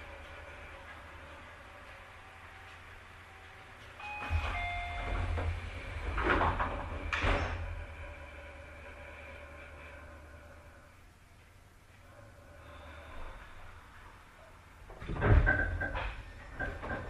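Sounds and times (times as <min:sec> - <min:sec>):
sliding train doors hissing: 0:00.0 - 0:10.9.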